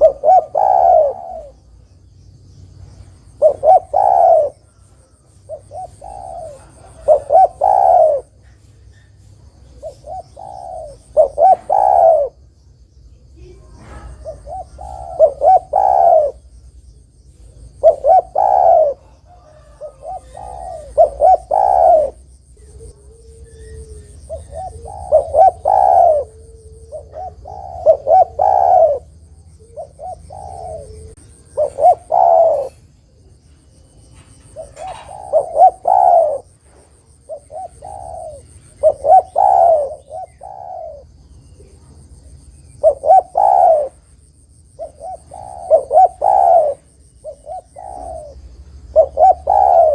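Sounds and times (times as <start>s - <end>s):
dove cooing: 0.0s - 1.8s, 3.2s - 9.0s, 9.6s - 12.5s, 13.4s - 16.7s, 17.3s - 49.9s.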